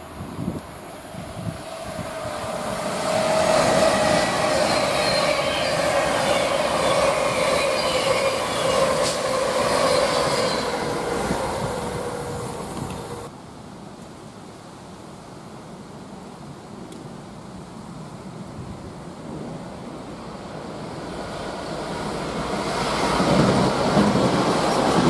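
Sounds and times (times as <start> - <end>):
electric train passing: 0.0 - 13.3, 18.2 - 25.0.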